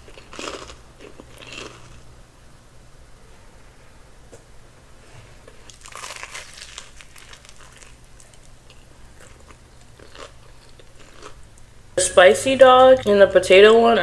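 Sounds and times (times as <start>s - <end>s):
crunching bites and chewing: 0.0s - 2.0s, 5.5s - 11.6s.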